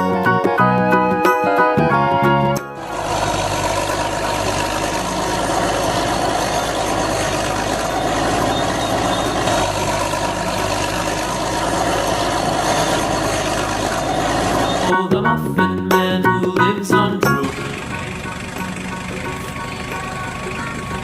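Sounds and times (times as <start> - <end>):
vehicle engine running: 2.3 - 15.1, 16.4 - 21.0.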